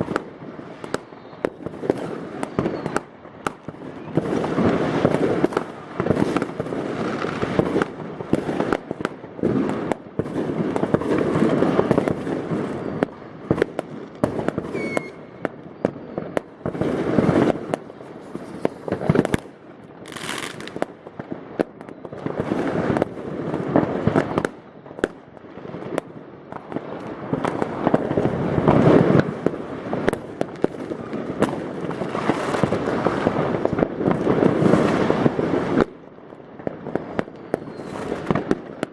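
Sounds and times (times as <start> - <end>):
firework whistling hiss: 0.0 - 3.1, 14.3 - 17.6, 20.0 - 20.8, 37.4 - 38.4
fireworks bangs and crackling: 0.0 - 38.9.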